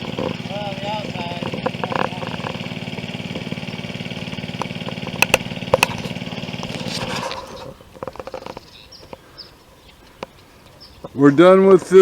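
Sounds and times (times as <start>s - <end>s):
water pump engine running: 0.0s - 8.5s.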